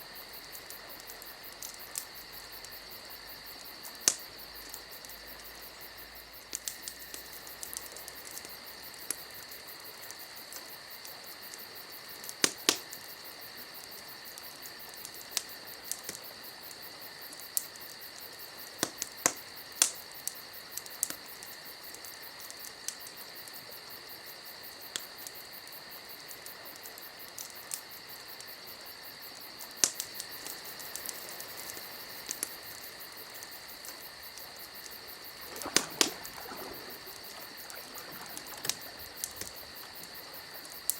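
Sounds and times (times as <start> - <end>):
cricket-like chirring: 0.0 - 40.9
sharp pops and clicks: 29.6 - 40.9.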